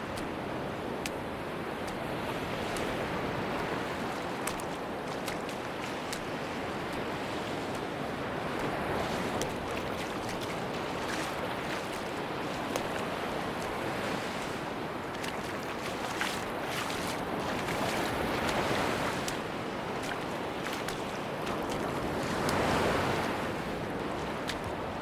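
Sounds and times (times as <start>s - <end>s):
surf washing onto beach: 0.0s - 25.0s
faint light ticks: 1.0s - 1.2s, 4.4s - 6.3s.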